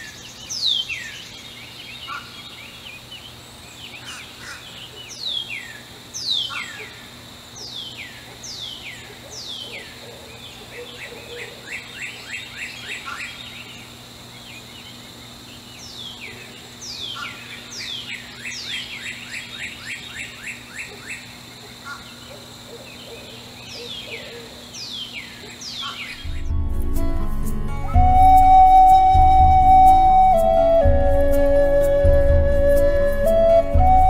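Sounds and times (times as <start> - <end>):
songbirds singing: 0.0 - 26.8.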